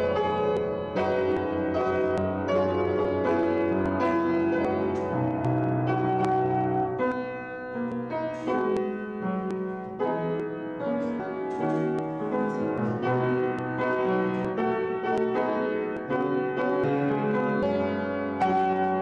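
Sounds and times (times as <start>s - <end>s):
slow piano piece: 0.0s - 19.0s.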